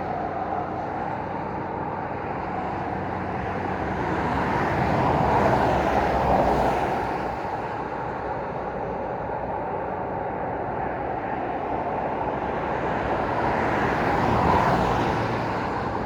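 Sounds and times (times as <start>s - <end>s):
background traffic hum: 8.5s - 16.0s.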